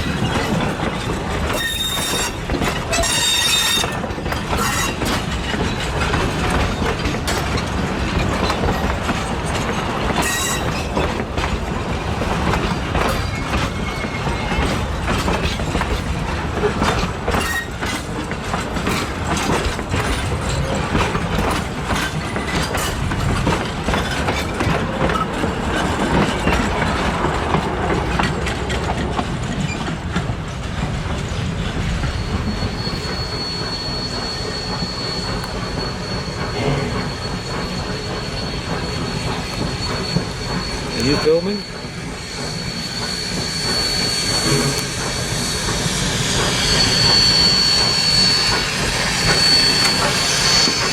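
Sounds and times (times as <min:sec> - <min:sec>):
high wheel squeal: 0:00.0 - 0:15.8, 0:16.6 - 0:18.2, 0:32.0 - 0:50.9
train wheels clicking over rail joints: 0:00.0 - 0:50.9.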